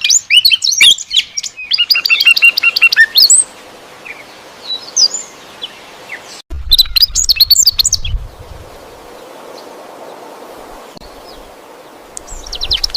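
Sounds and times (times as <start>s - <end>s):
small birds chirping: 0.0s - 12.9s
faint steady hiss: 8.2s - 12.9s.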